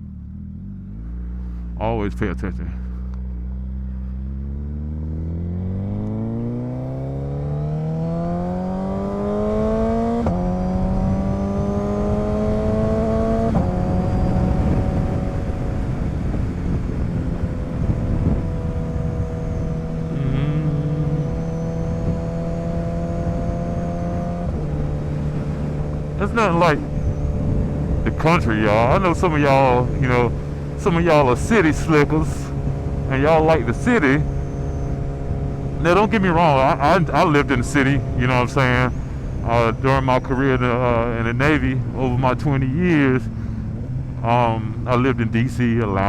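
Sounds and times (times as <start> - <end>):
motorcycle engine accelerating: 0.0 - 46.0
wind rush: 10.8 - 33.6.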